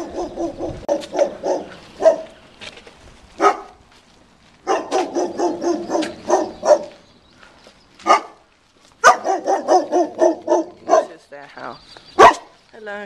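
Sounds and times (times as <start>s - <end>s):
large dog barking: 0.0s - 2.4s, 3.4s - 3.8s, 4.6s - 7.0s, 8.0s - 8.4s, 9.0s - 11.2s, 12.2s - 12.5s.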